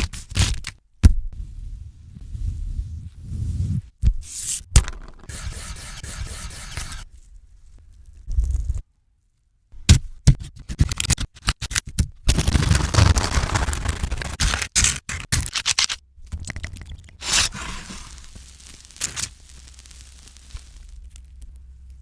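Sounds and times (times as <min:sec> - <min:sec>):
bread crackling and scraping: 0:12.3 - 0:15.9, 0:17.2 - 0:22.0.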